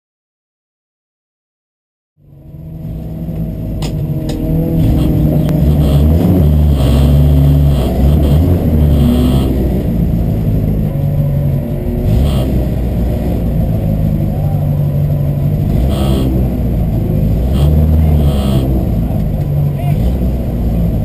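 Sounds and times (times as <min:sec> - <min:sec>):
race car engine revving: 0:02.2 - 0:21.0.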